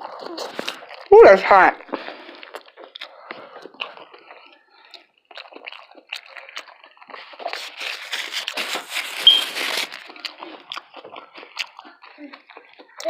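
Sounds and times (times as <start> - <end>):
person chewing and crunching: 0.0 - 1.1, 1.8 - 13.0
brief high squeak: 9.2 - 9.7.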